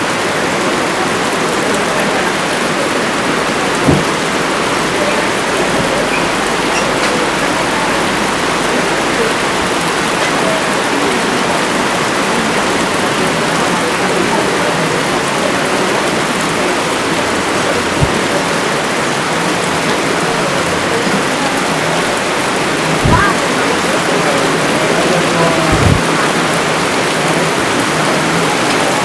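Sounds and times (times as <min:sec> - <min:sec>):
rain falling: 0:00.0 - 0:29.0
low thump: 0:03.8 - 0:04.2, 0:25.7 - 0:26.0.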